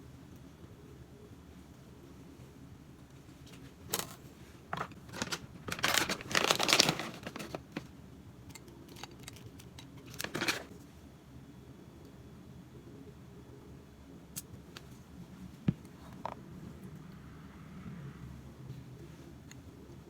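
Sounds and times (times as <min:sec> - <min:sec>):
crinkling: 0:03.4 - 0:07.9, 0:08.5 - 0:10.8.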